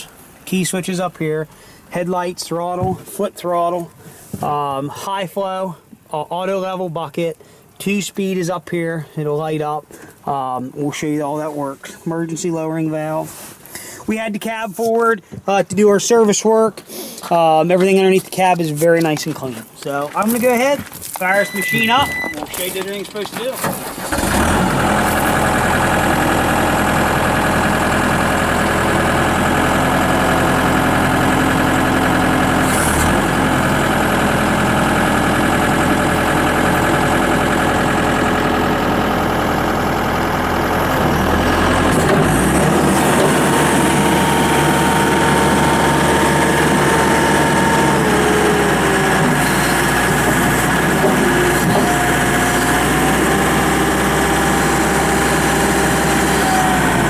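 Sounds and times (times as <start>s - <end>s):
diesel engine running: 23.7s - 57.0s.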